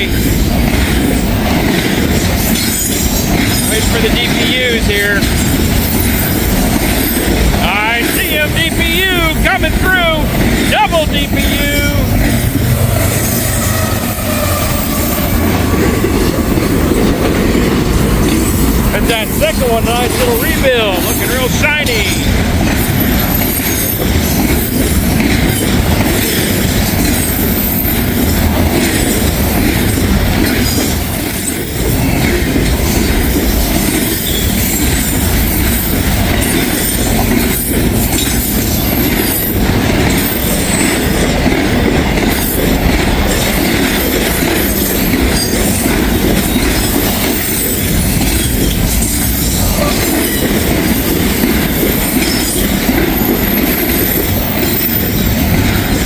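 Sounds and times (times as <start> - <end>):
clicking over rail joints: 0.0 - 9.4, 10.1 - 56.0
freight train wheels on rails: 0.0 - 56.0
high wheel squeal: 11.4 - 16.1, 22.8 - 25.0, 33.4 - 41.2, 44.6 - 55.5.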